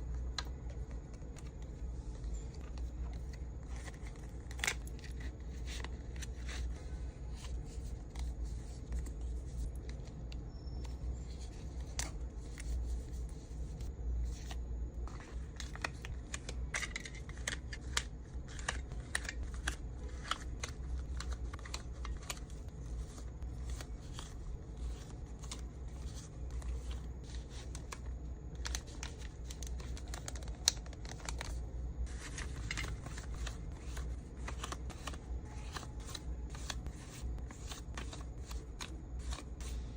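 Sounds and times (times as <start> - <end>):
steady low hum: 0.0 - 39.9
plastic packaging crinkling: 18.5 - 39.8.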